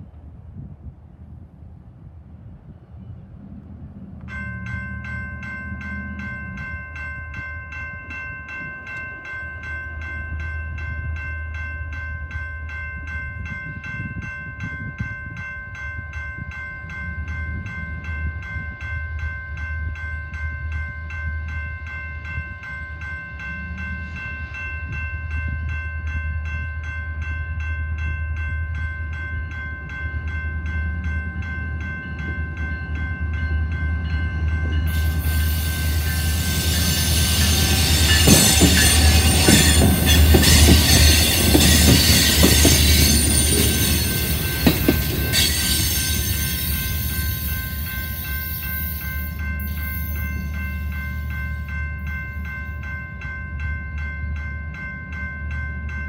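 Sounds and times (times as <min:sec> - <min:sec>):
diesel locomotive engine rumble: 0:00.0 - 0:56.0
bell ringing: 0:04.3 - 0:56.0
train wheels squealing on rails: 0:34.0 - 0:51.8.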